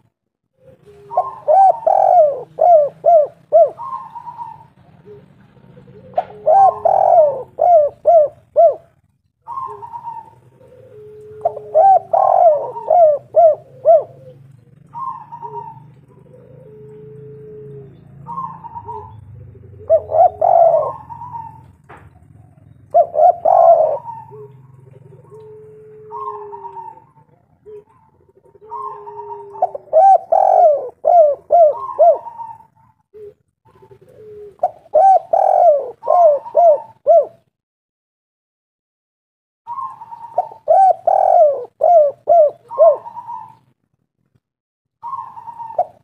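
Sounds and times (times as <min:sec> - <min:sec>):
dove cooing: 0:00.0 - 0:37.6, 0:39.7 - 0:43.8, 0:45.0 - 0:46.0.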